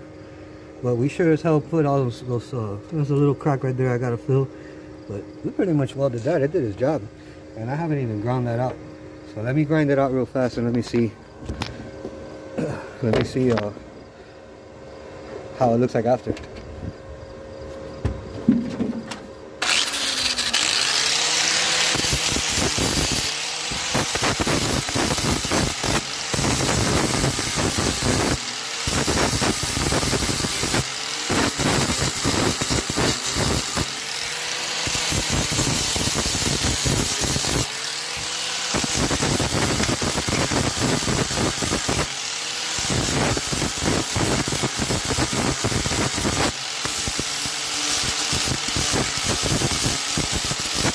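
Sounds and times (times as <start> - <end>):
angle grinder grinding steel: 19.6 - 50.9.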